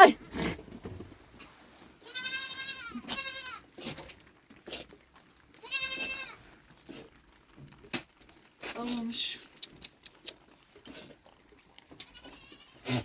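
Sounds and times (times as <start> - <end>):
goat bleating: 2.0 - 4.1, 5.6 - 6.4, 12.0 - 13.0.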